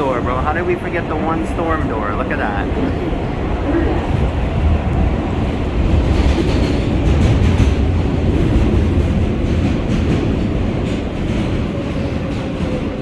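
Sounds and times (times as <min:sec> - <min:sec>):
subway train rumbling on rails: 0:00.0 - 0:13.0
clickety-clack of track joints: 0:04.1 - 0:13.0.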